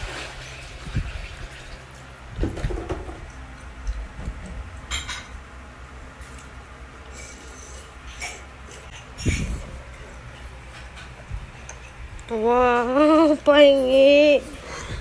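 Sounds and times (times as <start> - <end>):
dishes and cutlery clinking: 4.8 - 5.5, 8.1 - 12.0.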